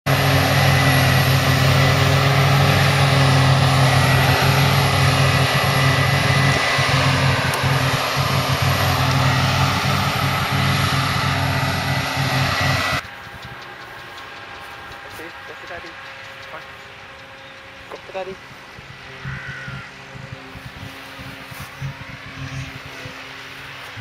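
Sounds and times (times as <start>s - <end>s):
diesel harvester running: 0.0s - 24.0s
high-pitched whine: 0.1s - 24.0s.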